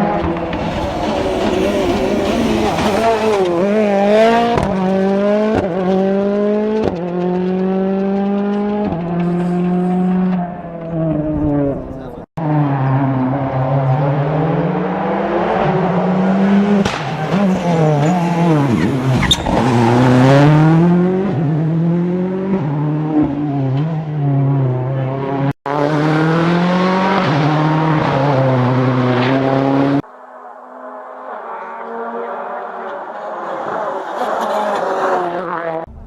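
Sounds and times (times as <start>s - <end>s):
rally car engines revving: 0.0s - 36.0s.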